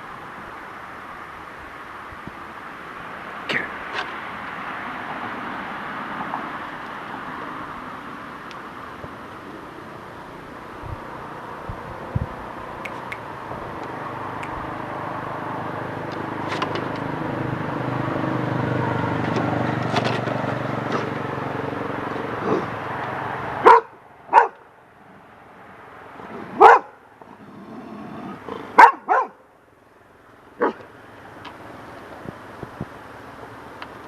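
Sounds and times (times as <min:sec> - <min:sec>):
steady rumbling noise: 0:06.7 - 0:18.2, 0:19.7 - 0:34.0
dog barking: 0:23.6 - 0:24.6, 0:26.5 - 0:27.0, 0:28.7 - 0:29.4, 0:30.6 - 0:30.8.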